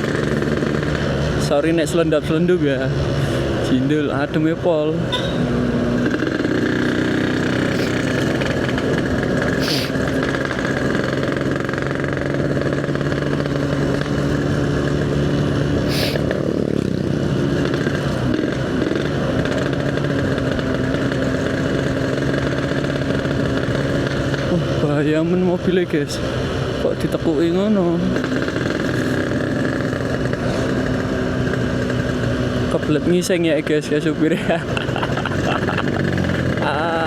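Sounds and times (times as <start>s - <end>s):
two-stroke motorcycle engine running: 0.0s - 37.0s
short hissing bursts: 9.6s - 10.0s, 15.9s - 16.2s.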